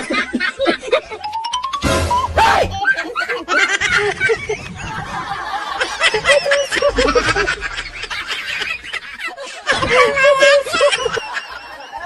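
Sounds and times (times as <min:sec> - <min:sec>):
person snickering: 0:05.8 - 0:09.7.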